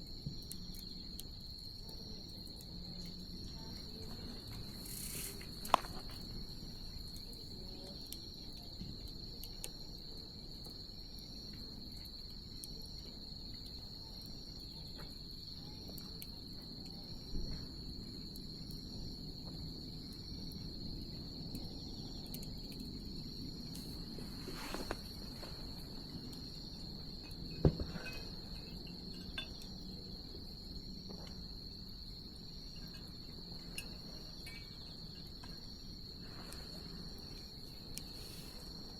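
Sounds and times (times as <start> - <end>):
bonfire hissing: 0.0 - 38.9
crickets trilling: 0.0 - 38.9
insect chirping in pulses: 0.0 - 38.9
fire popping: 3.2 - 8.3, 22.6 - 29.7.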